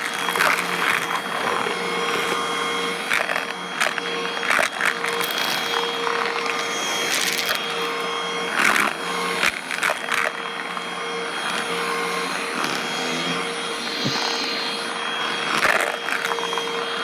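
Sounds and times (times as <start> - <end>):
vacuum cleaner motor whine: 0.0 - 17.0.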